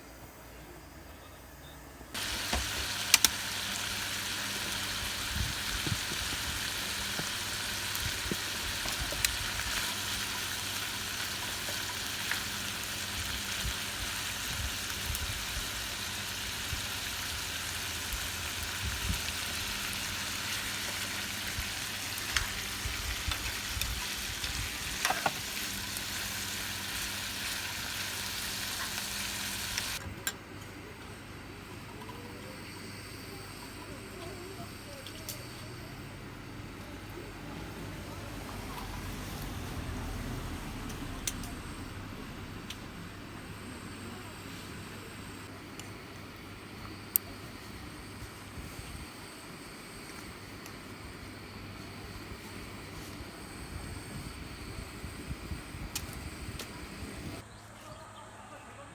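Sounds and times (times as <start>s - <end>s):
food sizzling: 2.2s - 30.1s.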